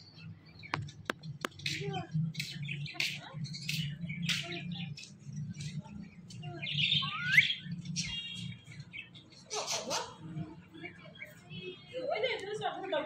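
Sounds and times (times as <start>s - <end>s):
parakeet chirping and squawking: 6.7s - 10.3s.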